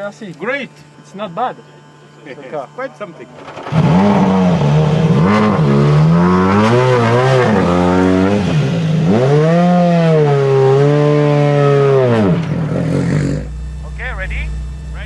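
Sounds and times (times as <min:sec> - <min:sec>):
rally car engine revving: 0:03.3 - 0:15.0.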